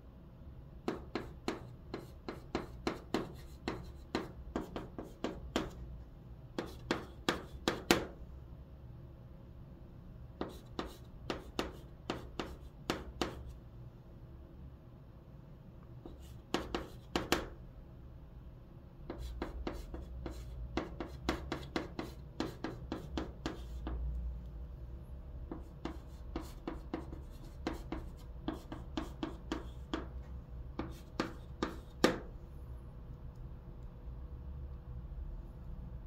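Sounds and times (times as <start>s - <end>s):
chalk tapping and scraping on blackboard: 0.8s - 5.8s, 6.6s - 8.2s, 10.4s - 13.6s, 16.0s - 17.6s, 19.0s - 24.0s, 25.5s - 32.3s.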